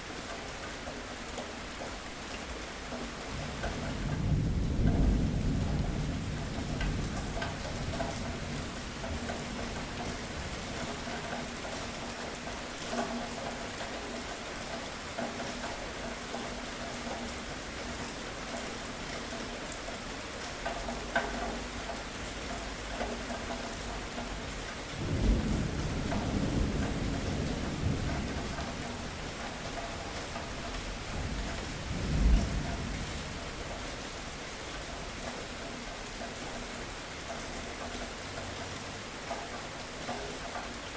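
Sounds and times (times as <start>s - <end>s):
steady rain: 0.0s - 40.9s
thunder rumbling: 3.3s - 11.0s, 24.9s - 34.4s.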